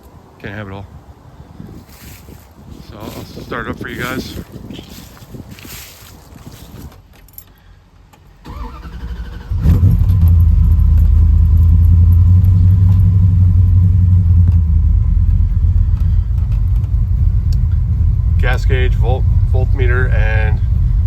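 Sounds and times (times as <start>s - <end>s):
keys jingling: 4.9s - 7.6s
car engine cranking and idling: 7.0s - 21.0s.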